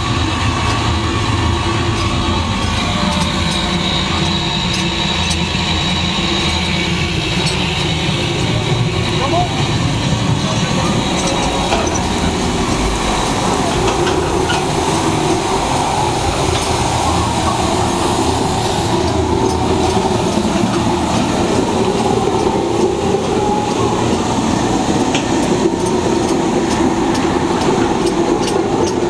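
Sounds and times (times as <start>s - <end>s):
kiln machinery rumbling: 0.0s - 29.0s.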